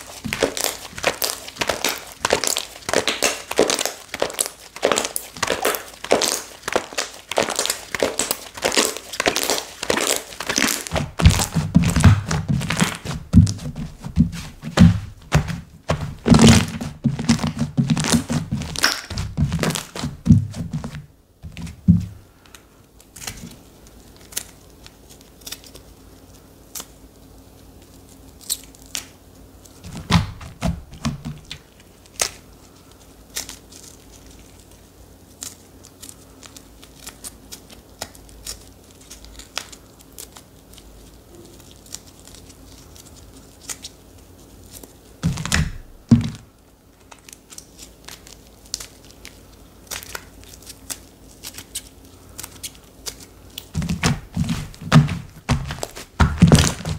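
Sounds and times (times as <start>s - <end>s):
slime squishing and popping: 0.0s - 22.2s.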